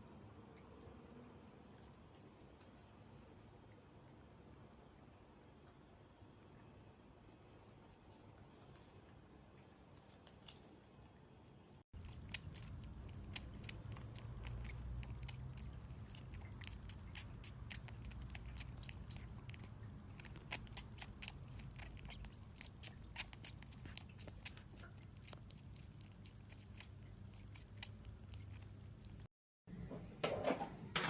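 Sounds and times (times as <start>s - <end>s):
pet crunching food: 8.7s - 10.9s, 11.9s - 29.3s.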